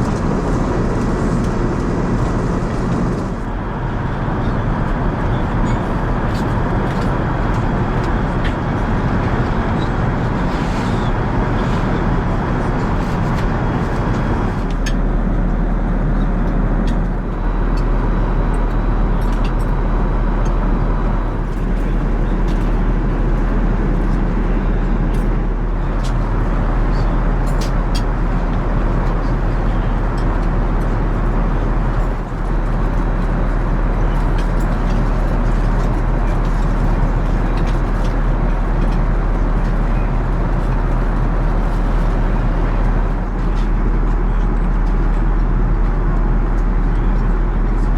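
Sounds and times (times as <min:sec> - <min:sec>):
airliner cabin engine rush: 0:00.0 - 0:47.9.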